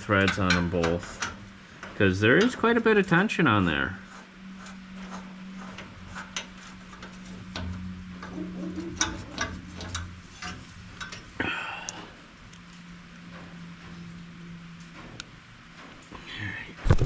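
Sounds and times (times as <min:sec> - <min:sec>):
hand tools and bolts clicking: 0:00.0 - 0:03.2, 0:04.0 - 0:13.4
steady low hum: 0:00.0 - 0:17.0.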